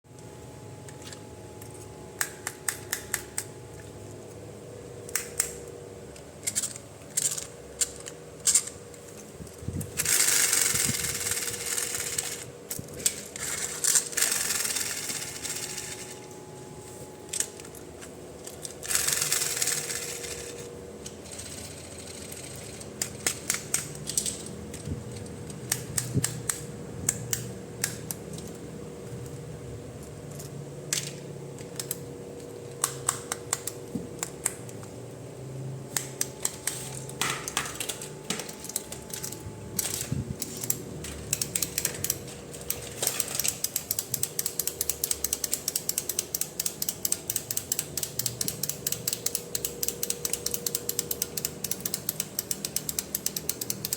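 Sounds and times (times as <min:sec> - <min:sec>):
plastic parts clicking and tapping: 0:36.0 - 0:53.9.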